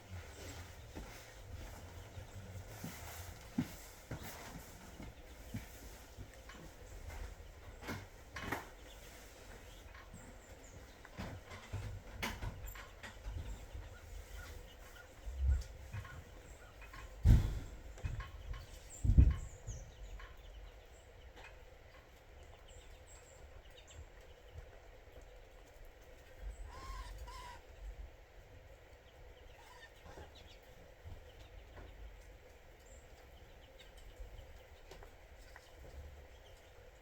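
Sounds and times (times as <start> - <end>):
faint bird calls: 0.0 - 21.6, 26.3 - 28.0, 29.3 - 31.9
loud low thumps: 17.2 - 18.2.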